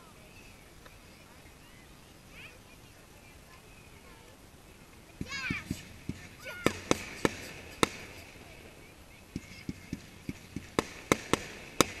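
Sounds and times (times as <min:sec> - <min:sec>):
fireworks bangs: 0:05.1 - 0:12.0
fireworks dull thuds: 0:05.1 - 0:12.0.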